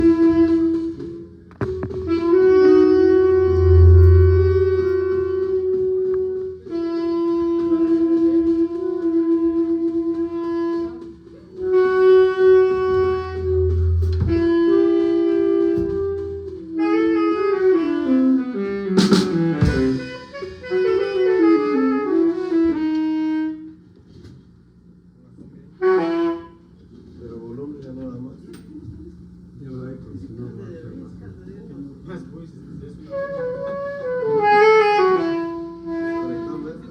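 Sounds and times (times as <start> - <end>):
saxophone warming up: 0.0 - 24.2, 25.8 - 26.8, 33.0 - 36.9.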